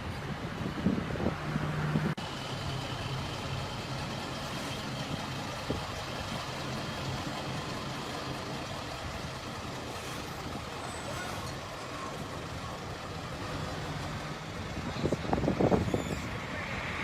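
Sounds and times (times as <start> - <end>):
heavy truck engine running: 0.0 - 16.6.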